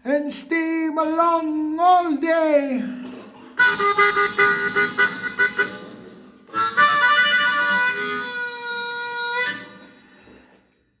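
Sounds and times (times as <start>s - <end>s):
blues harmonica chords: 3.6s - 10.5s.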